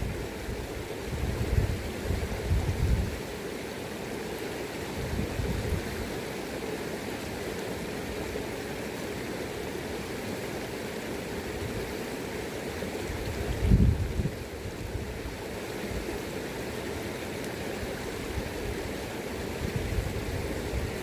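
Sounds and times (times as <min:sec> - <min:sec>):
wind gusts on microphone: 0:00.0 - 0:03.2, 0:04.9 - 0:06.1, 0:13.1 - 0:16.1, 0:17.8 - 0:21.0
river current flowing: 0:00.0 - 0:21.0.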